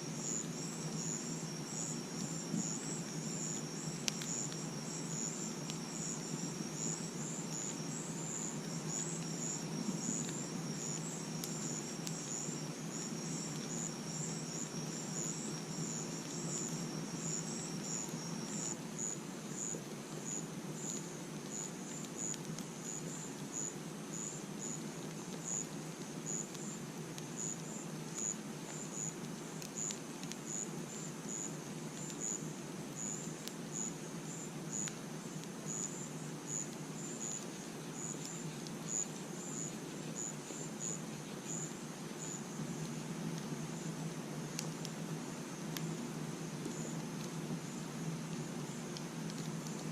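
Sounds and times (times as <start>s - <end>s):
insect high trill: 0.0s - 20.9s
campfire rustling and crackling: 0.0s - 49.9s
crickets chirping: 0.0s - 49.9s.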